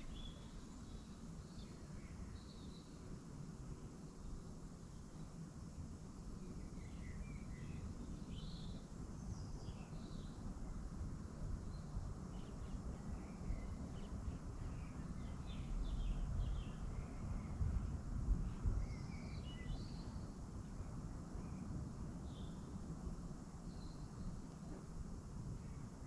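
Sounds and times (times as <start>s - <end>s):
small birds chirping: 0.0s - 26.0s
steady low rumble: 5.7s - 26.0s.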